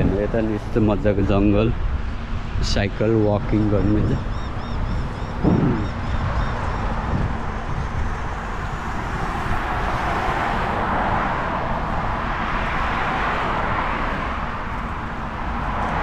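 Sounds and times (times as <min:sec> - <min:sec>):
bicycle road noise: 0:00.0 - 0:16.0
rushing wind: 0:00.0 - 0:16.0
deep rumble: 0:05.4 - 0:06.4.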